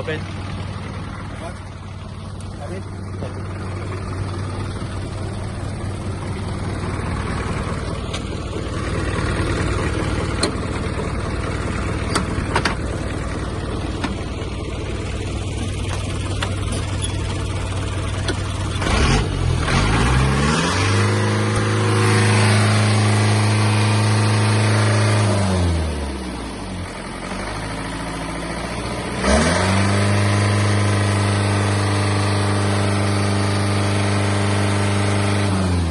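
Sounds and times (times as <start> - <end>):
diesel truck engine idling and revving: 0.0 - 35.9.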